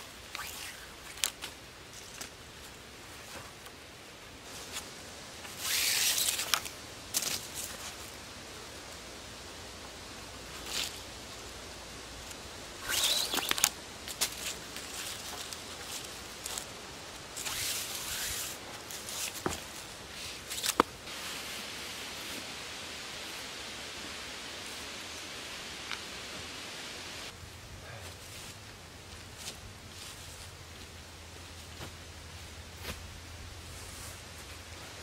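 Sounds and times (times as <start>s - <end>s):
rustles of hands and dry leaves: 0.0s - 35.0s
cord zipping over bark: 0.3s - 1.4s, 5.5s - 7.5s, 12.8s - 15.3s, 17.4s - 19.5s.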